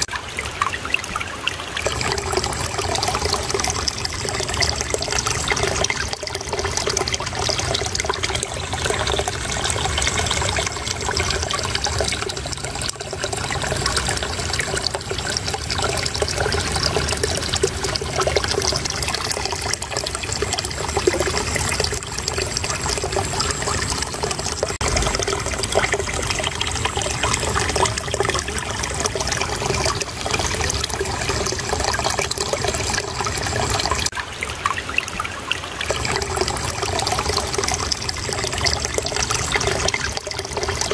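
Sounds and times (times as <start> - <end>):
water trickling and babbling: 0.0 - 40.9.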